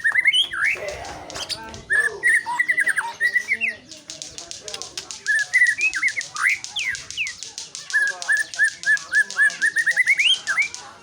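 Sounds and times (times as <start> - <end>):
bird singing whistled notes: 1.9 - 4.2, 5.2 - 11.0.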